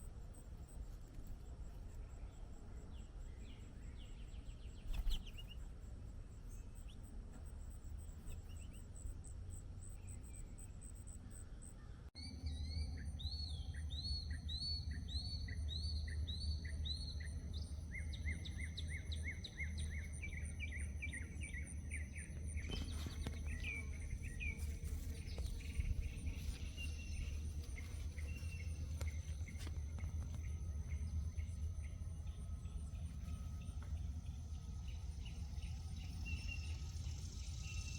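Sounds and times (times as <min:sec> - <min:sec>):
low background rumble: 0:00.0 - 0:37.9
songbirds singing: 0:00.7 - 0:37.9
high insect trill: 0:12.3 - 0:37.9.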